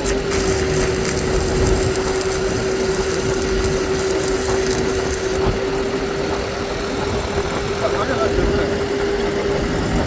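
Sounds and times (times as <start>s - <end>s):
harsh rasping: 0.0s - 5.5s
machinery humming: 0.0s - 10.0s.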